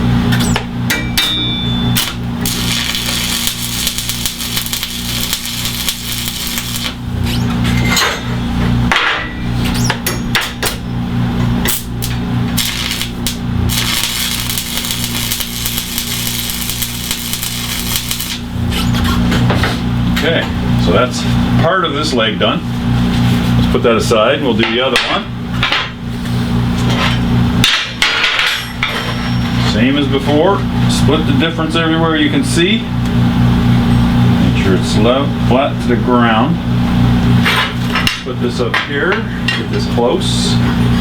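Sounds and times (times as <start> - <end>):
welding arc crackling: 2.0 - 7.6, 11.6 - 19.2.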